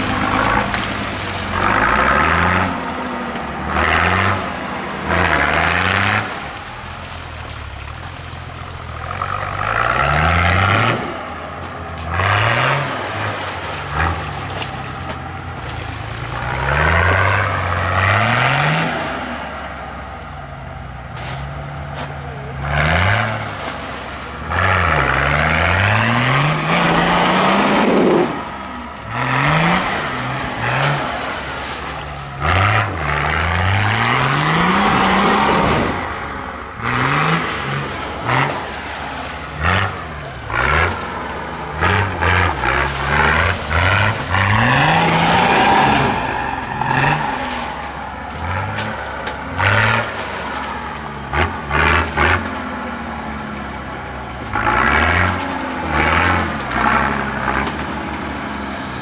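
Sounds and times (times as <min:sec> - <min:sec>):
off-road engine revving: 0:00.0 - 0:59.0
loud rushing noise: 0:26.0 - 0:52.0.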